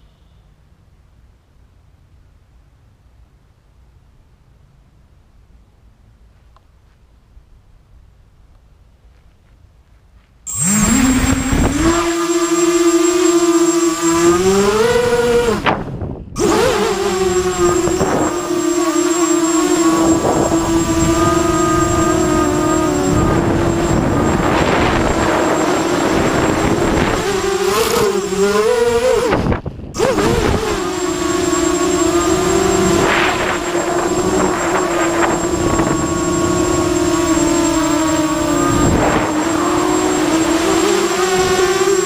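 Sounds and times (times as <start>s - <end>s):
quadcopter motors whining: 10.5s - 42.0s.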